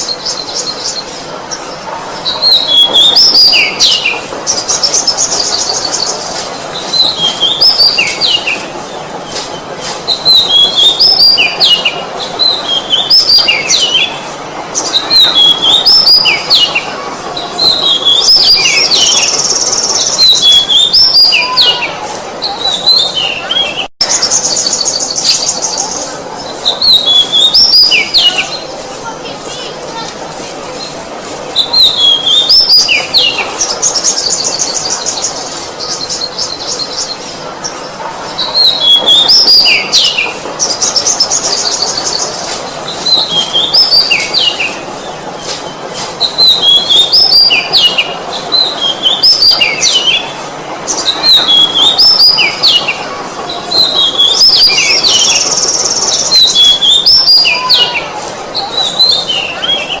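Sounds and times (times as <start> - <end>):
bird singing whistled phrases: 10.1 - 14.2, 14.9 - 16.7, 17.6 - 21.9, 26.7 - 28.6, 46.2 - 50.3, 51.0 - 52.9, 53.7 - 58.0.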